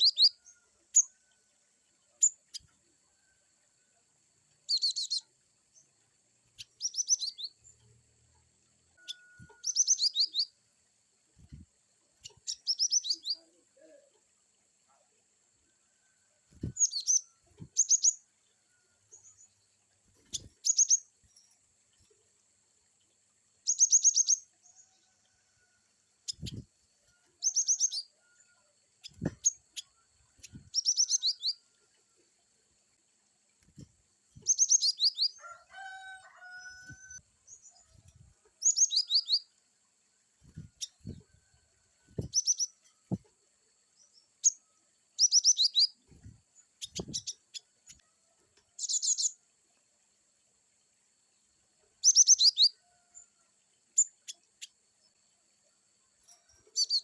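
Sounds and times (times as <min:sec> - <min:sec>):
bird high rapid chirping: 0:09.0 - 0:10.5, 0:16.7 - 0:18.2, 0:23.7 - 0:24.4, 0:29.0 - 0:31.6, 0:34.4 - 0:35.4, 0:38.6 - 0:39.4, 0:42.2 - 0:42.8, 0:45.2 - 0:46.0, 0:52.0 - 0:52.8, 0:56.8 - 0:57.0
lower warbling bird call: 0:09.0 - 0:10.5.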